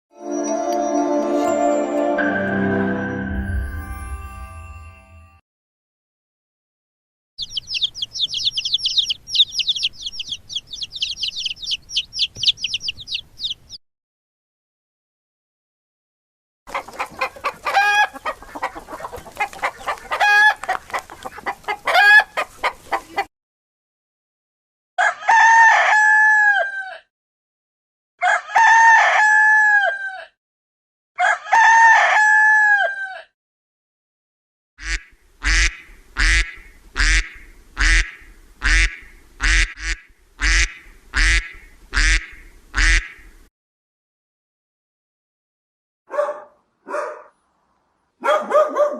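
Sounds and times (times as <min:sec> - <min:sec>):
hens clucking: 0:07.4 - 0:13.7, 0:16.7 - 0:23.3, 0:34.8 - 0:43.2
rooster crowing: 0:25.0 - 0:27.1, 0:28.2 - 0:30.4, 0:31.2 - 0:33.3.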